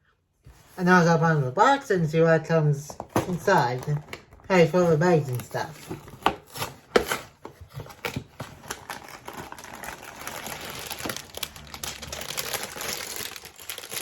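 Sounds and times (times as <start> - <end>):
cardboard box being opened: 4.9 - 14.0
plastic bags crinkling: 7.8 - 14.0.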